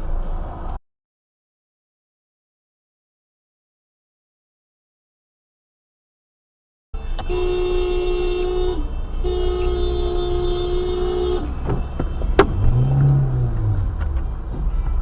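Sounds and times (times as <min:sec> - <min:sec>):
road noise: 0:00.0 - 0:00.8, 0:07.0 - 0:15.0
vehicle horn blasts: 0:07.2 - 0:13.0.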